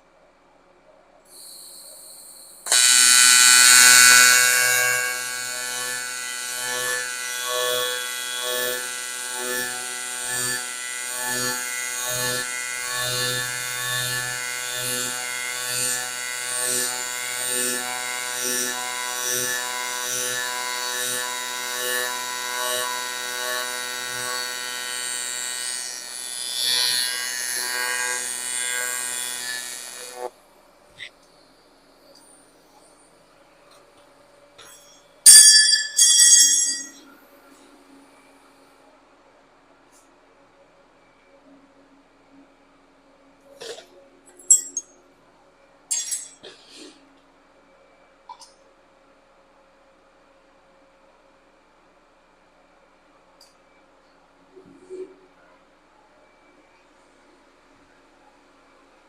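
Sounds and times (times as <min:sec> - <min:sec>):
welding arc buzzing: 0:01.4 - 0:31.2, 0:34.6 - 0:37.0, 0:44.4 - 0:44.8, 0:45.9 - 0:47.0.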